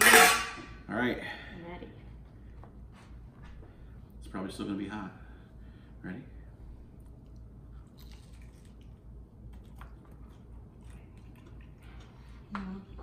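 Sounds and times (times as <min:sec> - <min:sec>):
people crunching and chewing: 0:07.0 - 0:12.5.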